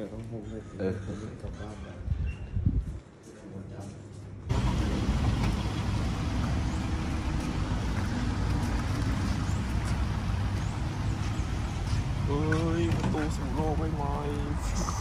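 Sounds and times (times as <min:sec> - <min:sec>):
car engine idling: 0:04.5 - 0:15.0.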